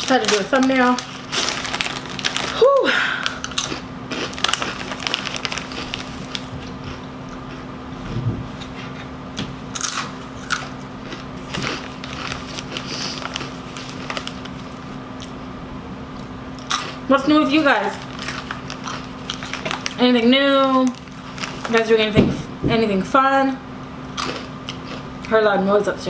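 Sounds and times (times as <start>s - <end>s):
chips crunching: 0.0s - 7.7s, 9.7s - 15.4s, 16.6s - 22.2s, 24.2s - 25.4s.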